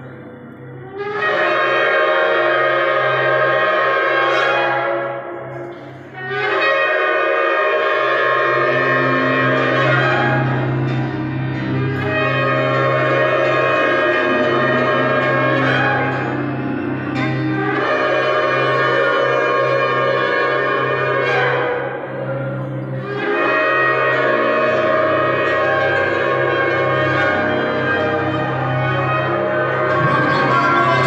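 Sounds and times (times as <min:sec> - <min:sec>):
shofar blasts: 0:00.8 - 0:31.0
steady low drone: 0:07.6 - 0:31.0.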